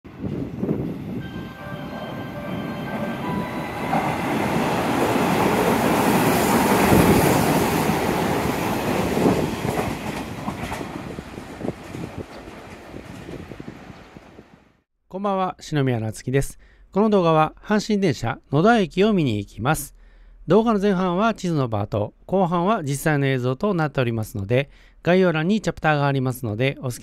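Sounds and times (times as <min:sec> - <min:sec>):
steady high tones: 0:01.2 - 0:06.7
train wheels clattering on rails: 0:02.0 - 0:13.7.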